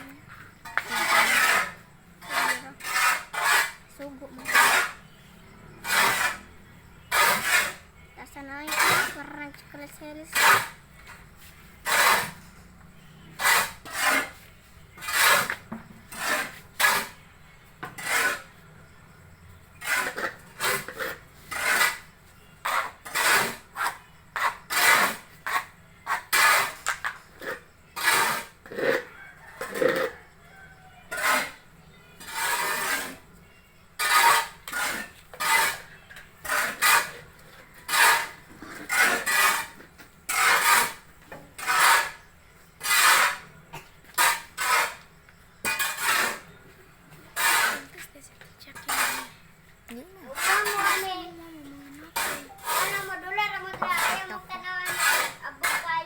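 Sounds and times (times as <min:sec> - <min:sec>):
hand scraping sawdust substrate: 0:00.0 - 0:05.0, 0:05.7 - 0:06.5, 0:07.1 - 0:09.3, 0:11.4 - 0:12.5, 0:13.4 - 0:17.2, 0:32.2 - 0:33.3, 0:34.0 - 0:41.0, 0:41.6 - 0:43.5, 0:44.2 - 0:45.1, 0:45.7 - 0:56.0.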